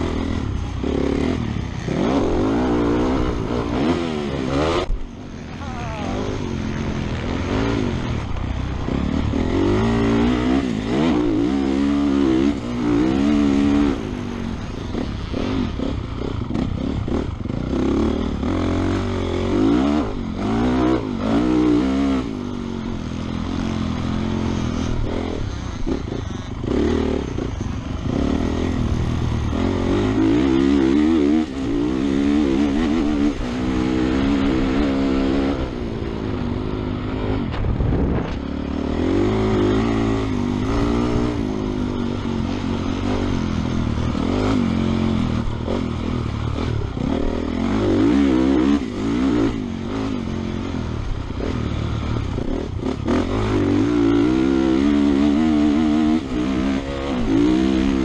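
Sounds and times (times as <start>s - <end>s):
motorbike engine revving: 0.0s - 58.0s
wind rush: 37.5s - 38.5s.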